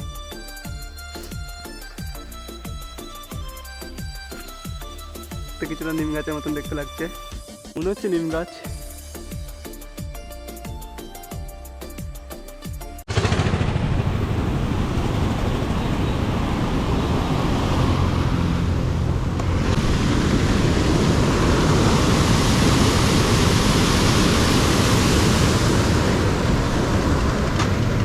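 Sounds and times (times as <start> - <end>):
low road and engine rumble: 13.0 - 28.0
wind rushing over microphone: 13.2 - 28.0.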